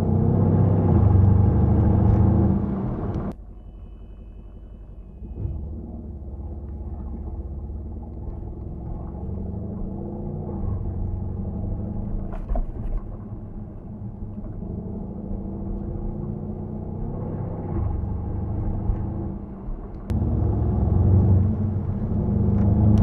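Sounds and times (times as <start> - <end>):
car engine while driving: 0.0 - 23.0.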